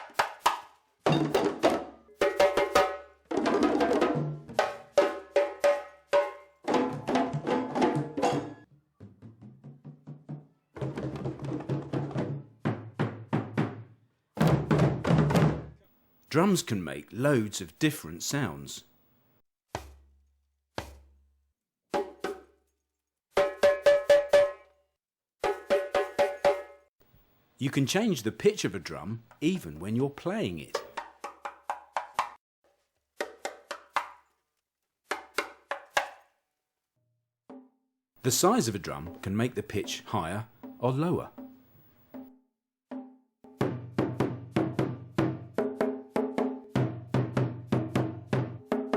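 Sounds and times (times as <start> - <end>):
drum strikes: 0.0 - 8.6, 9.3 - 15.8, 42.9 - 48.9.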